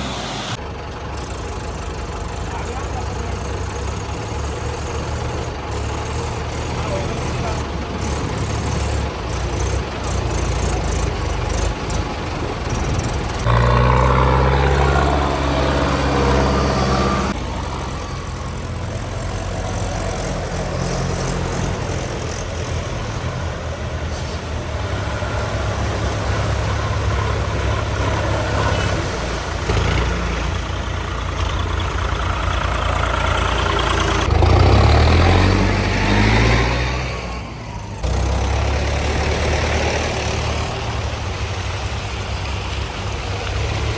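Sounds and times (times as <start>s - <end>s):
tractor diesel engines revving: 0.0s - 43.9s.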